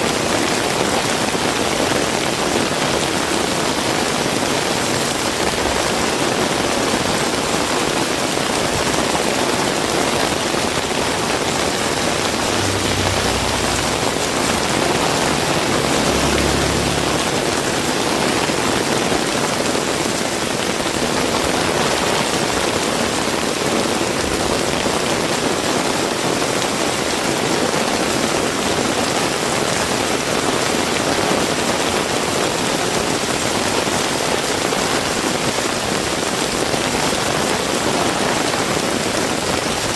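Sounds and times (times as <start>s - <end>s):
heavy rain falling: 0.0s - 30.0s
low rumble: 11.4s - 18.4s.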